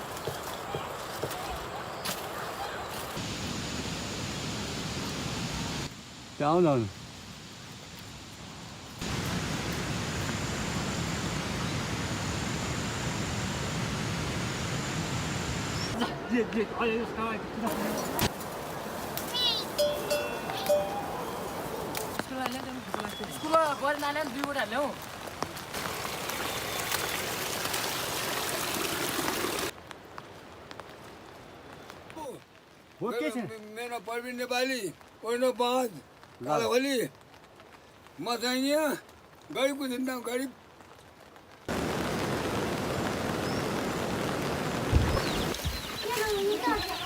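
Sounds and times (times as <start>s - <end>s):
water rushing: 9.0s - 29.8s, 41.7s - 47.0s.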